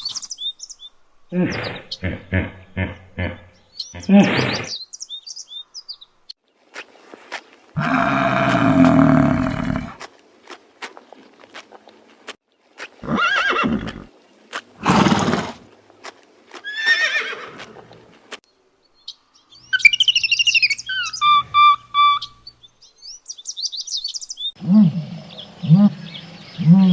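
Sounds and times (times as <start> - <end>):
animal calling: 7.8 - 10.0, 19.7 - 22.4.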